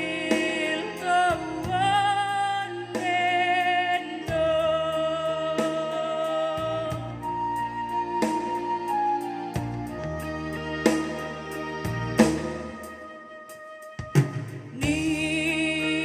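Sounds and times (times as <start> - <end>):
young woman singing: 0.0 - 7.6, 14.7 - 16.0
pop backing track with bass: 0.0 - 16.0.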